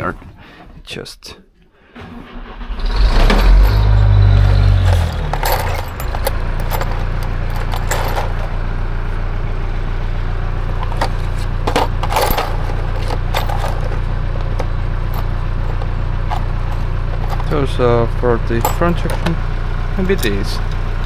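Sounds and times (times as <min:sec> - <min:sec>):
screws clinking and rattling: 0:03.0 - 0:08.6, 0:10.8 - 0:17.6, 0:18.6 - 0:19.4, 0:20.1 - 0:20.7.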